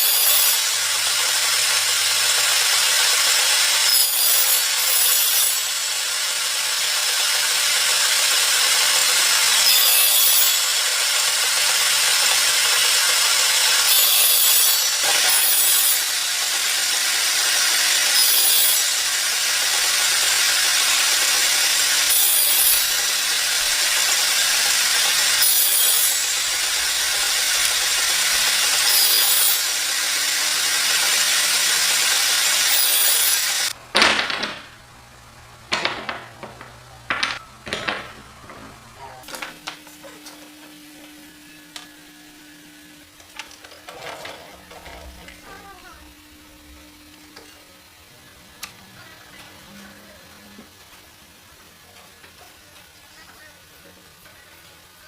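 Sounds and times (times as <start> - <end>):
saw cutting through wood: 0.0 - 33.8.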